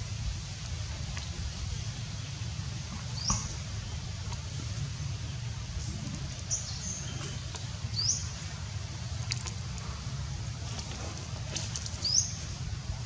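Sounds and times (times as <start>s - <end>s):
birds chirping: 3.0s - 8.6s, 11.9s - 12.6s.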